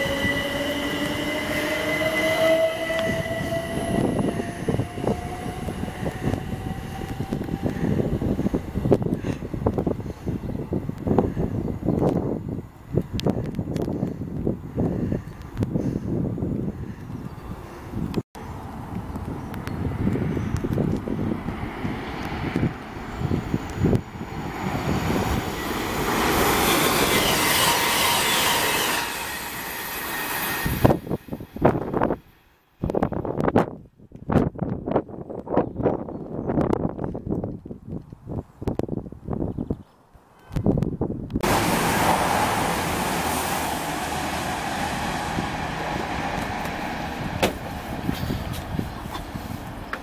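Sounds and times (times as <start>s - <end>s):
train passing at speed: 0.0s - 13.9s, 17.5s - 32.8s, 41.4s - 50.0s
wind buffeting microphone: 0.0s - 29.6s, 30.4s - 50.0s.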